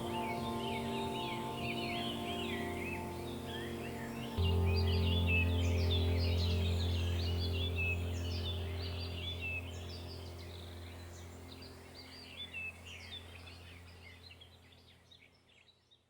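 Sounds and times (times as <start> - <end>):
low sustained drone: 0.0 - 14.9
small birds chirping: 0.0 - 16.0.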